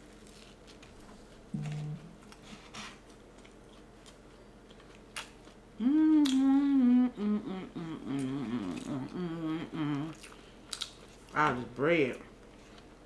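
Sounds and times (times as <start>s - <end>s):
woman humming: 1.6s - 2.3s, 5.8s - 10.2s.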